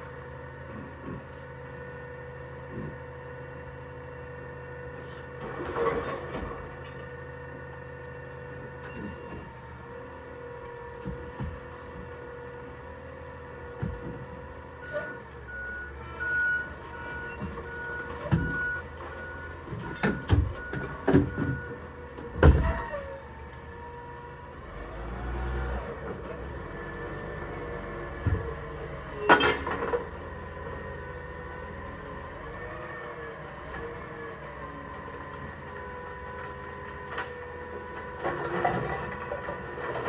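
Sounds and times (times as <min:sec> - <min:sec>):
truck engine running: 0:00.0 - 0:40.0
reversing beeper: 0:08.4 - 0:09.6.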